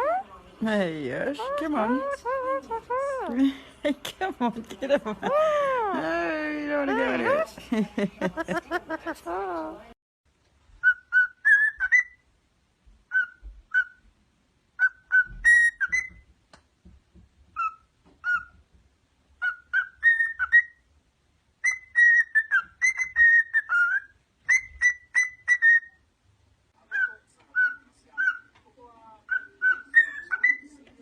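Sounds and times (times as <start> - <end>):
parrot whistling: 0.0 - 0.3, 10.8 - 12.2, 13.1 - 14.0, 14.8 - 16.2, 19.4 - 20.8, 21.6 - 26.0, 29.3 - 30.7.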